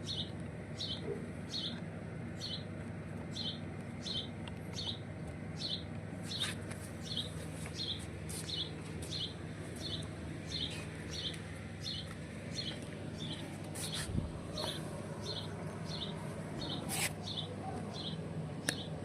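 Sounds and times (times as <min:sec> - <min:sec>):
steady low hum: 0:00.0 - 0:19.0
bird chirping: 0:05.6 - 0:14.0.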